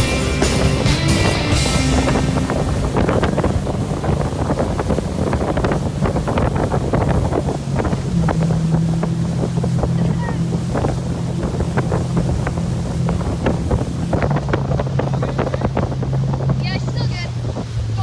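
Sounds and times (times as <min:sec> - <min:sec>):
motorboat engine hum: 0:00.0 - 0:18.0
wind buffeting microphone: 0:00.0 - 0:18.0.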